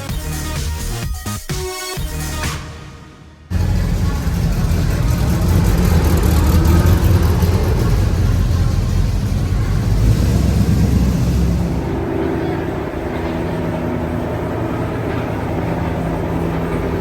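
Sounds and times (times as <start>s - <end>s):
car engine running: 3.5s - 17.0s.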